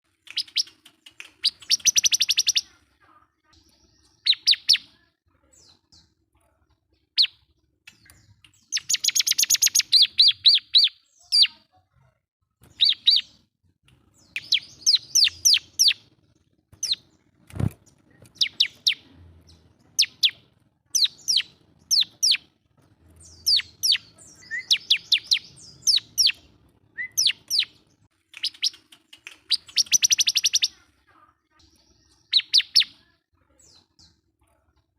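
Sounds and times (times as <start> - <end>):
bird chirping and trilling: 0.3 - 6.1, 7.0 - 11.7, 12.6 - 13.4, 14.1 - 16.1, 16.8 - 22.5, 23.1 - 30.9, 31.6 - 33.0.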